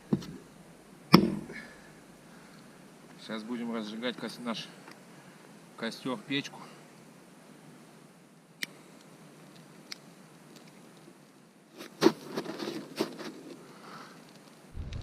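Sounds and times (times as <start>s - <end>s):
fire crackling rush: 13.7s - 15.0s.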